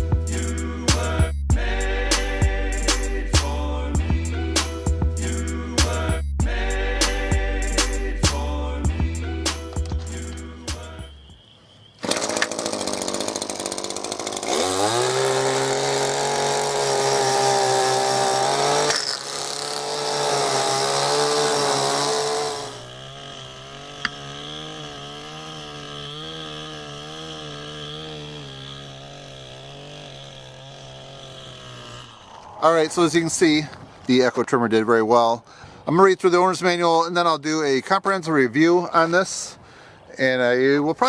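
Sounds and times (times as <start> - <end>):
string trimmer engine running: 12.0 - 32.6.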